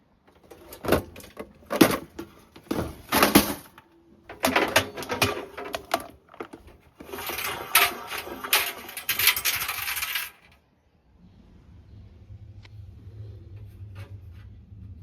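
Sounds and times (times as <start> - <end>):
metallic clattering and jingling: 0.3 - 10.6.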